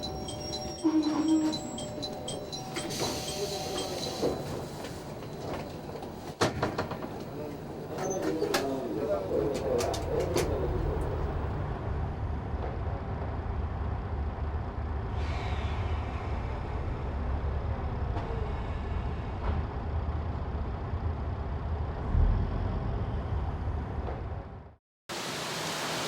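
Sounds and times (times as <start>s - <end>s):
diesel railcar engine idling: 0.0s - 5.2s.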